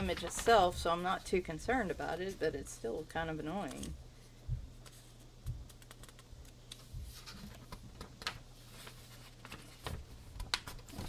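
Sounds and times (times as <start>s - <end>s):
paper pages rustling: 0.0s - 2.4s, 4.8s - 11.0s
steady low hum: 0.0s - 10.5s.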